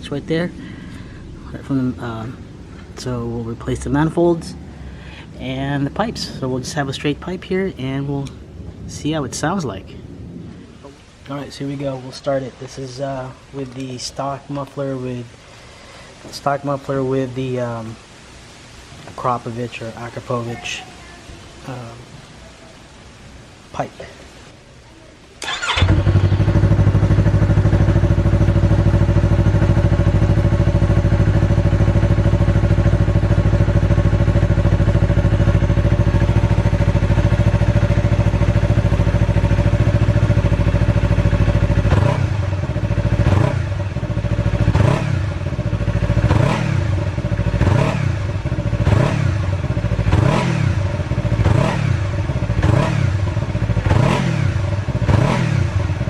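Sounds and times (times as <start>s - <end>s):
motorcycle engine idling: 0.0s - 7.0s, 25.4s - 56.0s
motorcycle throttle blips: 25.4s - 56.0s.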